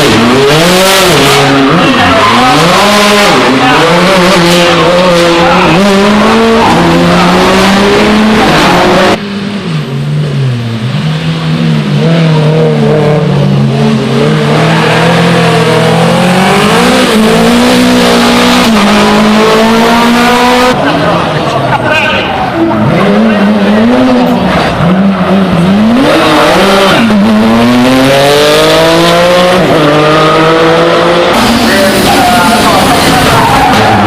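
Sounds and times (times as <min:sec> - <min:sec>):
rally car engines revving: 0:00.0 - 0:34.0.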